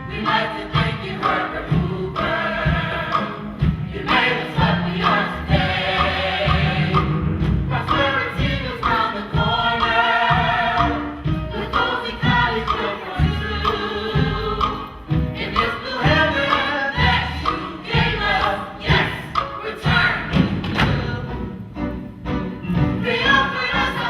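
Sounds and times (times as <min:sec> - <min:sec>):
instrumental accompaniment: 0:00.0 - 0:24.0.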